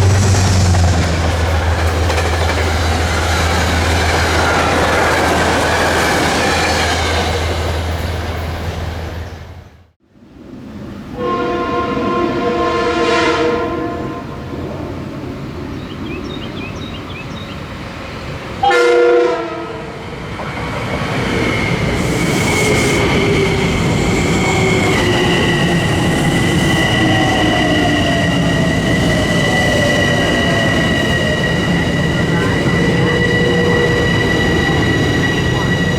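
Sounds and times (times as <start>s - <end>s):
rumble of train passing: 0.0s - 35.9s
train horn: 11.1s - 14.6s, 18.6s - 20.0s.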